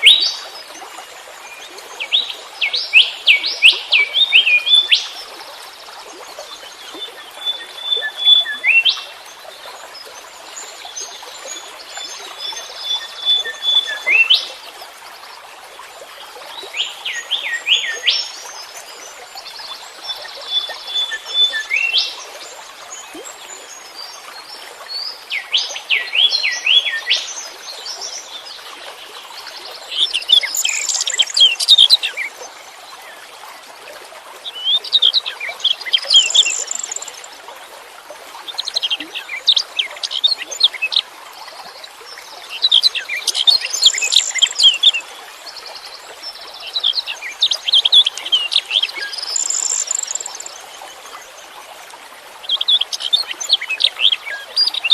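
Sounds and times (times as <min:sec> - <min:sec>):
songbird chirping and trilling: 0:30.0 - 0:32.2, 0:35.7 - 0:37.3, 0:46.6 - 0:50.7.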